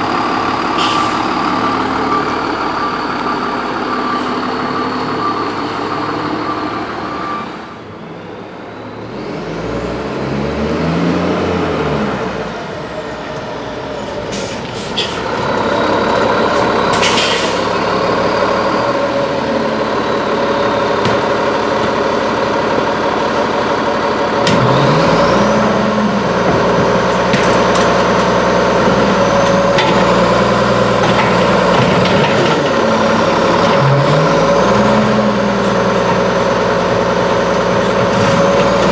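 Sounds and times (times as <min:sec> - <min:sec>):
garbage truck engine revving: 0:08.8 - 0:38.9.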